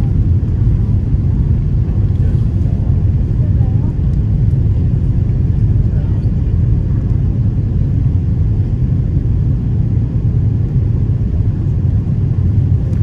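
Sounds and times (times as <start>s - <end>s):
airplane cabin engine rumble: 0.0s - 13.0s.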